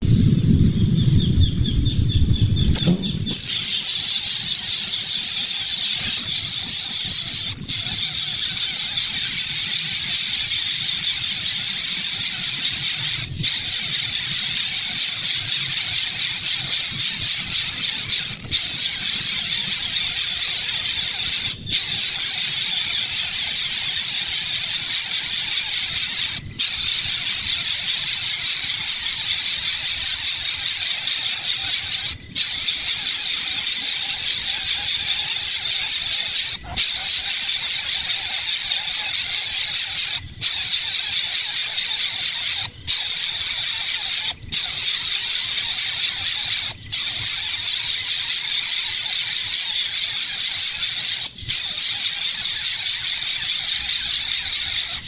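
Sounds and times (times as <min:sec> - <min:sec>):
low rumble: 0:00.0 - 0:03.5
nestling birds chirping shrilly: 0:00.6 - 0:55.0.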